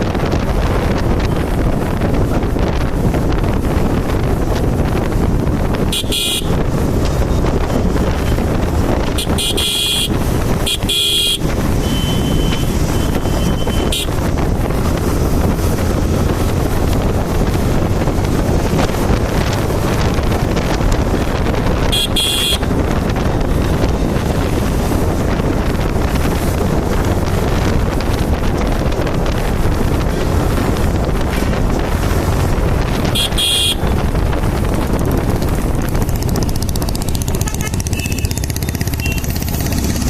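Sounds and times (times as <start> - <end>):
motorcycle engine running: 0.0 - 40.0
wind buffeting microphone: 0.0 - 40.0
vehicle horn toots: 5.9 - 6.6, 9.1 - 14.2, 21.9 - 22.7, 33.0 - 34.0, 37.3 - 38.4, 39.0 - 39.4.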